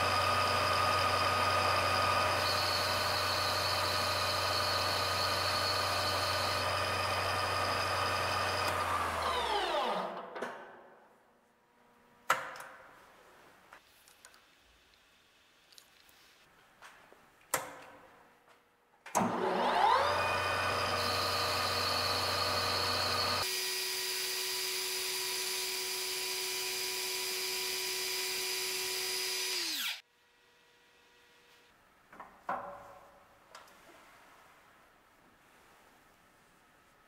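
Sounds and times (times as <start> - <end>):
lathe spindle whine: 0.0 - 10.2, 19.3 - 30.0.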